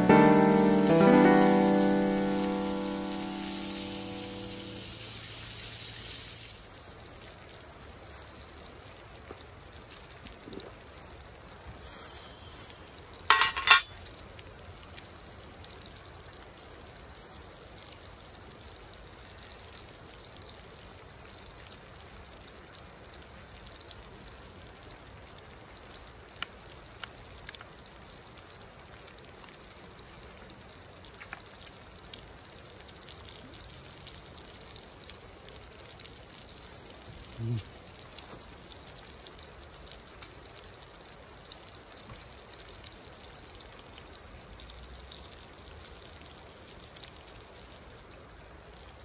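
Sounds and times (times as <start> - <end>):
meat sizzling in a skillet: 0.0 - 7.1
campfire crackles: 0.0 - 49.0.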